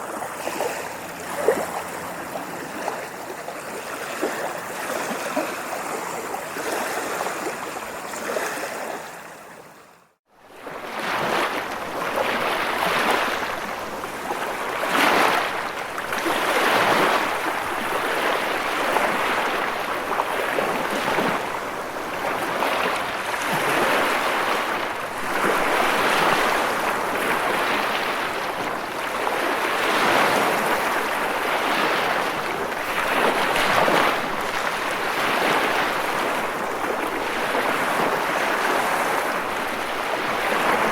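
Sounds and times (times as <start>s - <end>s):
ocean waves washing in: 10.4s - 40.9s.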